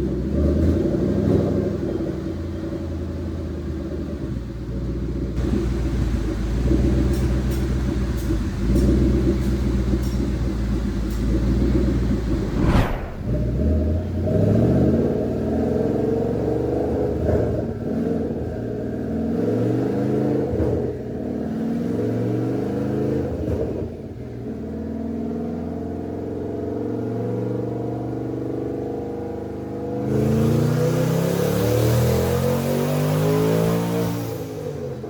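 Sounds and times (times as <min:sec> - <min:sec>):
car engine accelerating hard: 0:25.5 - 0:35.0.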